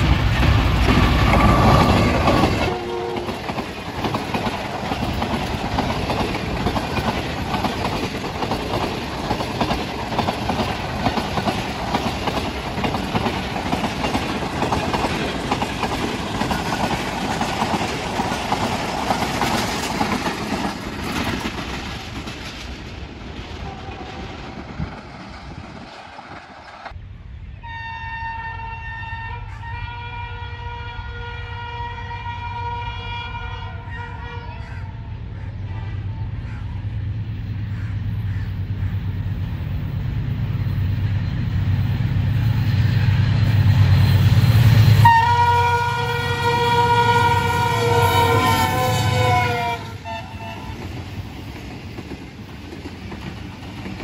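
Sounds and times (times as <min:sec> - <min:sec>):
train wheels clattering on rails: 0:00.0 - 0:27.0, 0:37.6 - 0:54.0
locomotive air horn: 0:01.2 - 0:03.4, 0:27.6 - 0:36.3, 0:45.0 - 0:50.9.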